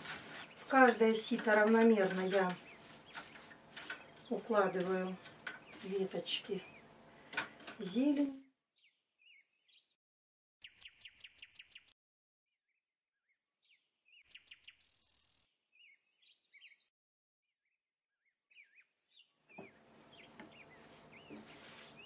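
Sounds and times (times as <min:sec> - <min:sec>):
faint high bird chirps: 0:10.6 - 0:12.0, 0:13.6 - 0:15.0, 0:15.7 - 0:16.9, 0:18.2 - 0:22.0.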